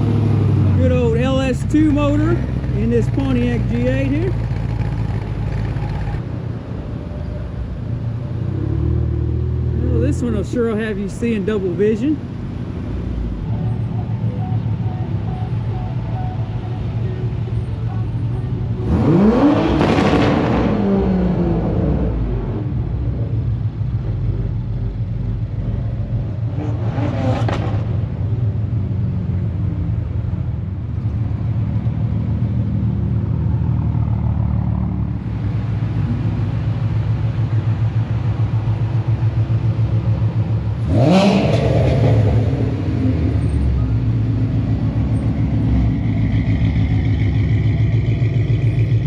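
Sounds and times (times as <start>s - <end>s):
car engines low rumble: 0.0s - 49.0s
car engine revving: 13.8s - 22.9s, 24.9s - 28.1s, 39.1s - 49.0s.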